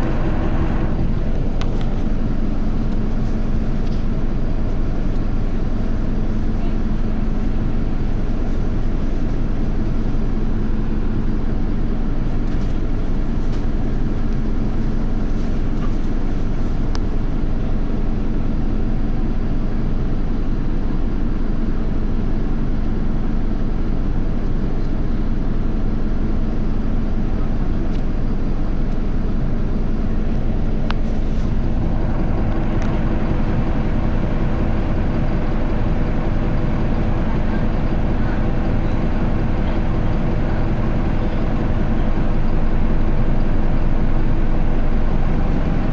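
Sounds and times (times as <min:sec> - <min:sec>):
steady engine tone: 0:00.0 - 0:03.2, 0:30.4 - 0:45.9
bus diesel engine drone: 0:00.0 - 0:45.9.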